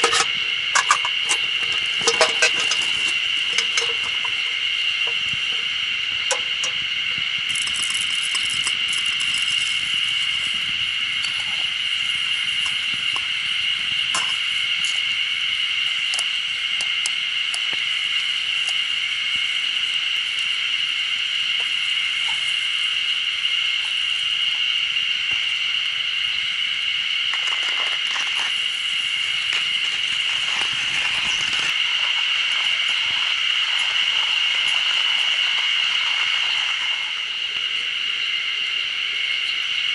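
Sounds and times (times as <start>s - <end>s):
high-pitched drone: 0.0s - 27.1s.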